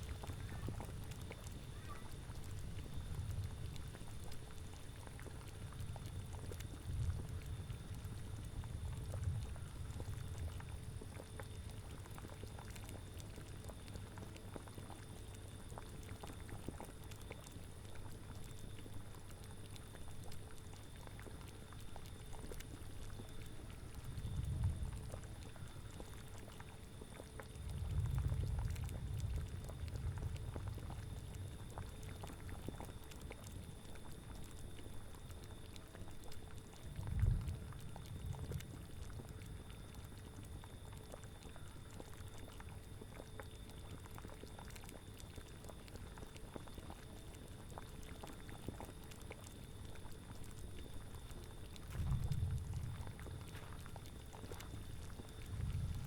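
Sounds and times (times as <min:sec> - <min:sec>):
cauldron bubbling: 0:02.3 - 0:56.0
low rumbling wind gusts: 0:37.0 - 0:38.9, 0:51.9 - 0:53.5, 0:55.4 - 0:56.0.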